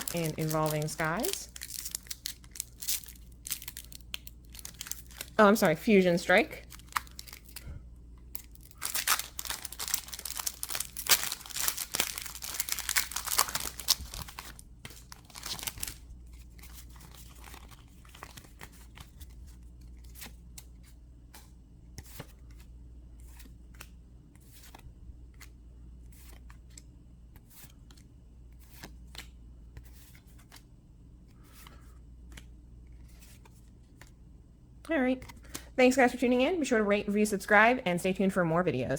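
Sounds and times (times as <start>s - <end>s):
foil wrapper tearing and crinkling: 0.0s - 5.4s, 6.6s - 7.6s, 8.4s - 18.4s
trading cards flicking and sliding: 16.6s - 30.7s.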